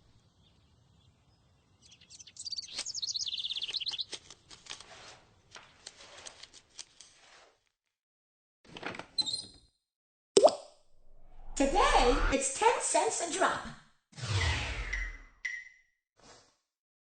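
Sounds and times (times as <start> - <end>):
bird chirping in warbling trill: 1.6 - 4.1.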